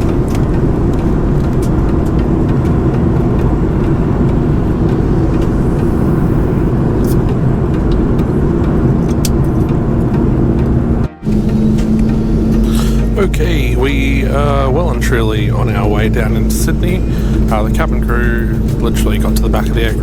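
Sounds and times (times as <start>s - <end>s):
airplane cabin engine rumble: 0.0s - 20.0s.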